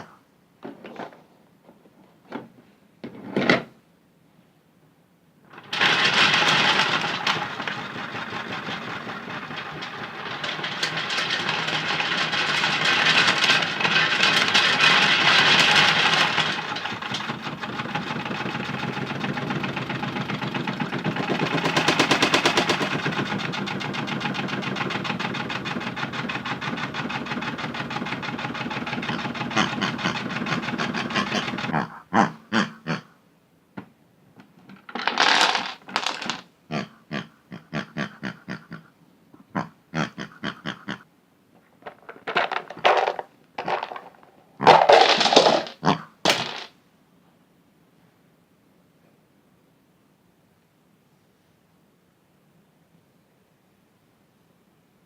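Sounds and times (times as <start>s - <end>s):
toy washing machine motor: 5.5s - 31.8s, 41.8s - 46.5s
toys rattling in drum: 5.5s - 31.8s, 34.5s - 36.5s, 41.8s - 46.8s.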